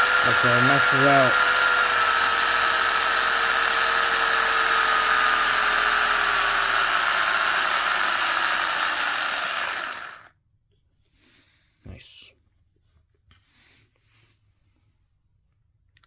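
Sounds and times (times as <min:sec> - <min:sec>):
electric motor whine: 0:00.0 - 0:10.3.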